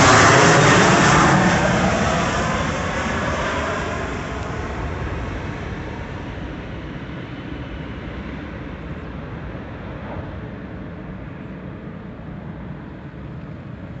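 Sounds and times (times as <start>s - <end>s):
jet engine rumble: 0.0s - 14.0s.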